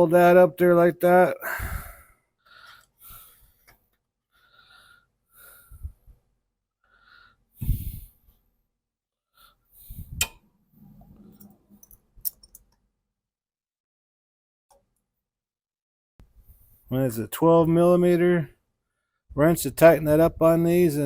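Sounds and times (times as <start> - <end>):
person breathing and grunting: 1.4 - 3.6, 6.9 - 8.3
metallic tool clicks: 11.8 - 12.8.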